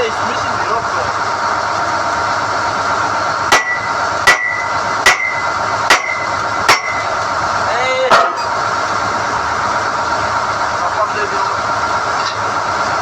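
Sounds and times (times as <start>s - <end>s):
drilling rig droning: 0.0s - 13.0s
hammer ringing on steel: 3.5s - 7.1s.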